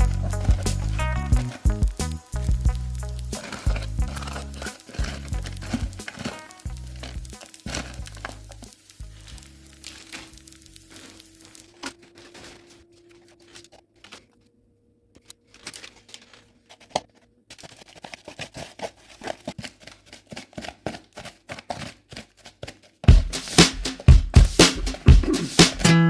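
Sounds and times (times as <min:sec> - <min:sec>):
loud music: 0:00.0 - 0:03.0, 0:23.1 - 0:26.0
material crackling and tearing: 0:00.0 - 0:26.0.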